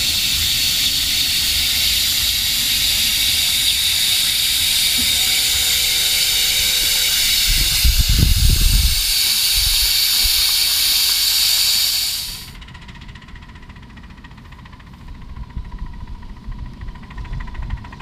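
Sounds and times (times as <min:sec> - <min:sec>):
steam hissing: 0:00.0 - 0:12.6.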